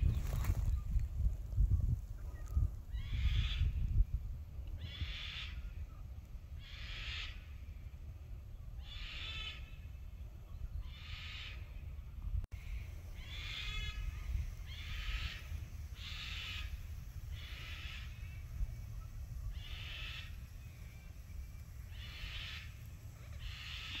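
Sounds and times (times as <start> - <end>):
bird harsh call: 6.6 - 7.5, 8.8 - 9.9, 10.8 - 11.7, 12.6 - 24.0
steady low rumble: 11.9 - 24.0.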